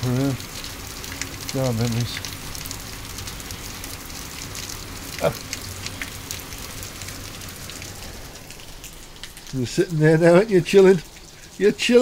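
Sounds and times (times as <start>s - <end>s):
rain drips and patter: 0.0s - 12.0s
steady rain falling: 0.0s - 12.0s.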